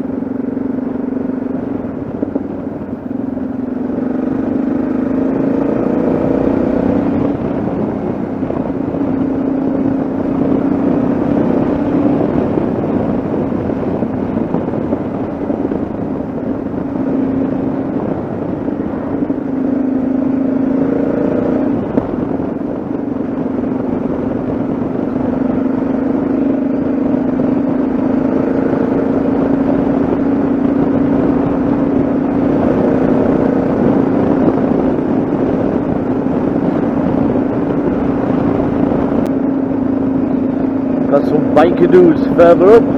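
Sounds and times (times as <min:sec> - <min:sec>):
motorcycle engine cruising: 0:00.0 - 0:42.9
wind and road noise: 0:00.0 - 0:42.9.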